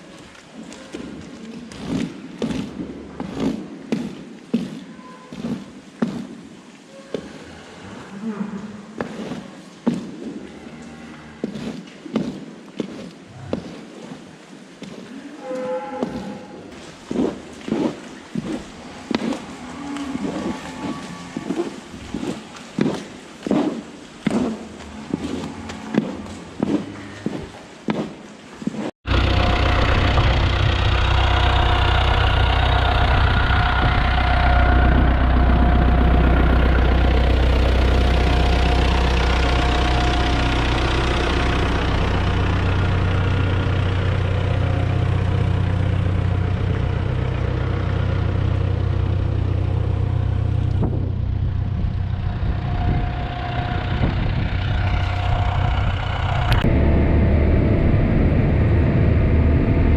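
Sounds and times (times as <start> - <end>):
vehicle engine droning: 29.1 - 59.9.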